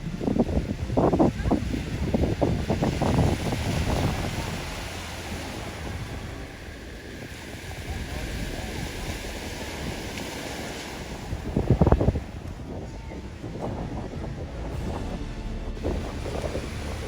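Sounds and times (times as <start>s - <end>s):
surf on sandy beach: 0.0s - 17.0s
wind on microphone: 0.0s - 17.0s.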